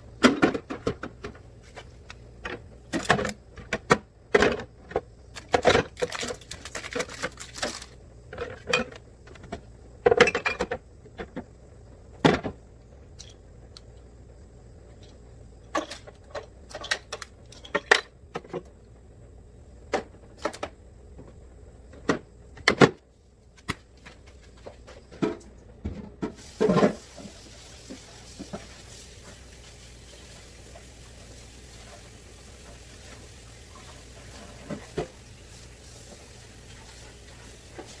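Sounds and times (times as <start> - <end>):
faint steady hiss: 0.0 - 38.0
bottles and containers clinking: 2.4 - 10.8, 15.7 - 18.6.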